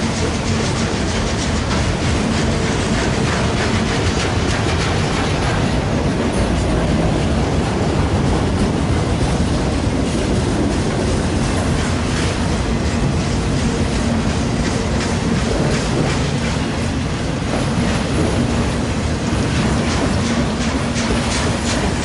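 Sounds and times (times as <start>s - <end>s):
rumble of wheels on rail: 0.0s - 22.0s
wheels clacking over rail joints: 0.0s - 22.0s.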